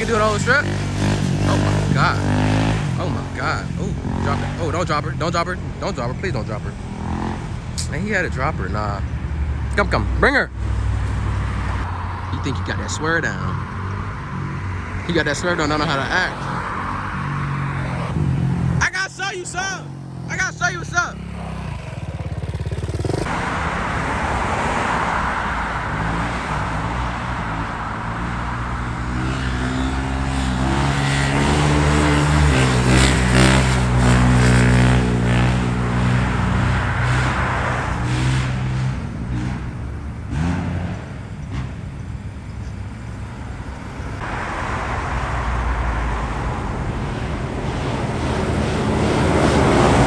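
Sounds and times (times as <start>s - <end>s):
motorbike engine revving: 0.0s - 50.0s
steady rushing noise: 11.6s - 29.0s.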